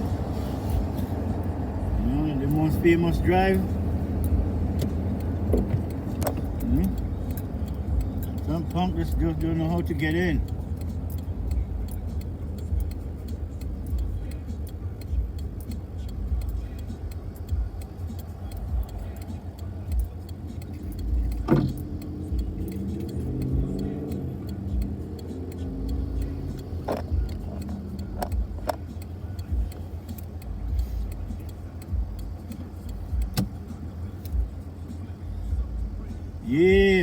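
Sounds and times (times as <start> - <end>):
car engine and tyres rumbling: 0.0 - 37.0
sharp clicks or knocks: 20.7 - 23.5, 26.6 - 28.9, 32.5 - 33.6.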